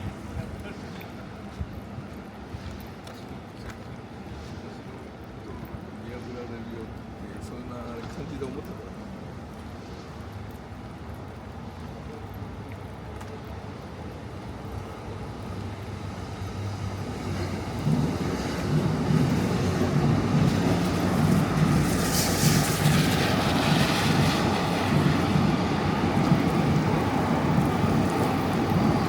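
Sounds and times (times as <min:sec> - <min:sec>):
train rumbling past: 0:15.5 - 0:29.0.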